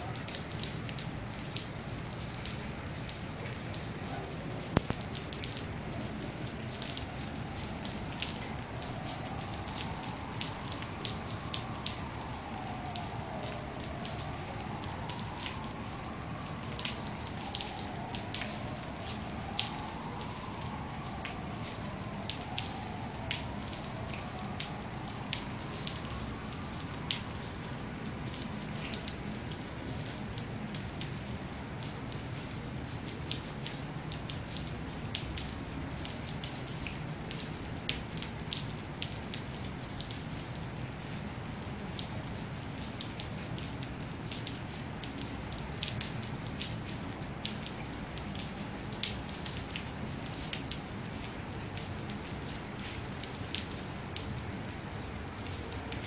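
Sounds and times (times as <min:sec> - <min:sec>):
rain drops ticking: 0:00.0 - 0:56.0.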